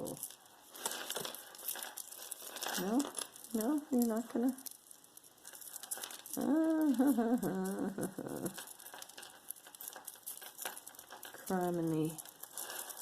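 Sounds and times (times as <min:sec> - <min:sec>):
jewelry clicking and rustling: 0:00.0 - 0:13.0
woman groaning: 0:06.4 - 0:08.6.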